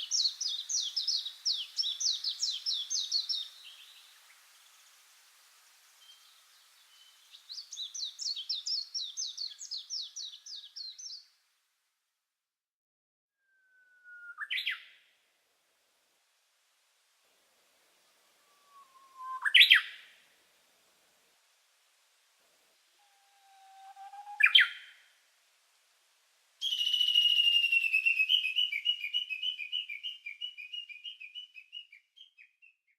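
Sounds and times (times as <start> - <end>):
songbird singing high notes: 0.0 - 4.3, 6.0 - 11.3, 13.4 - 15.0, 18.2 - 20.2, 23.0 - 25.2, 26.6 - 32.6
faint outdoor hiss: 0.0 - 12.6, 13.4 - 32.9.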